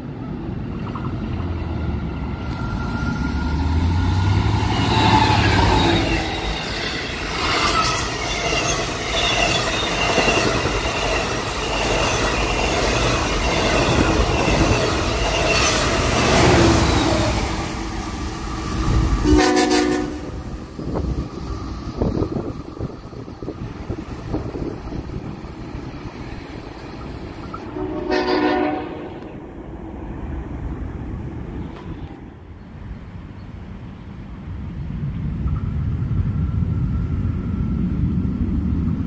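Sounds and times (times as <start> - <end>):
train engine rumble: 0.0 - 39.0
train wheels on rails: 0.0 - 39.0
high wheel squealing: 2.2 - 19.2.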